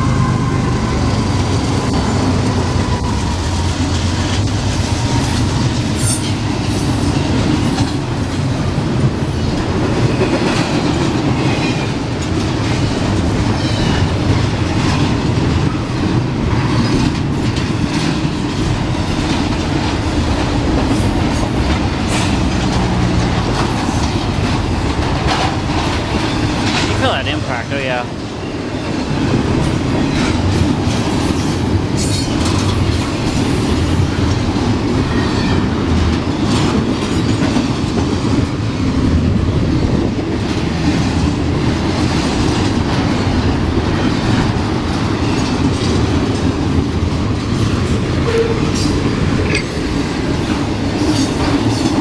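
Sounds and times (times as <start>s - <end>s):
train wheels rumbling and clicking: 0.0s - 52.0s.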